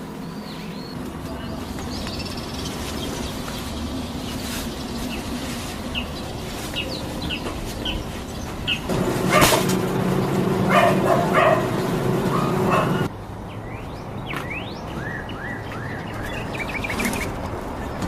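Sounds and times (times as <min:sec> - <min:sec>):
small birds chirping: 0:00.0 - 0:18.0
steady low hum: 0:08.8 - 0:13.1
dog barking: 0:09.2 - 0:09.7, 0:10.6 - 0:13.1.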